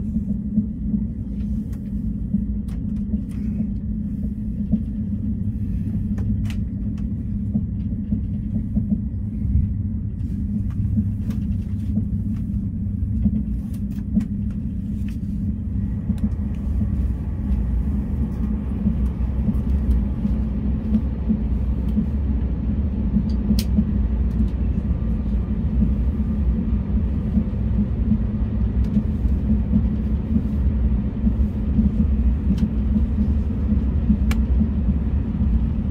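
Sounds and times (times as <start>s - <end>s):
train wheels rumbling: 0.0s - 35.9s.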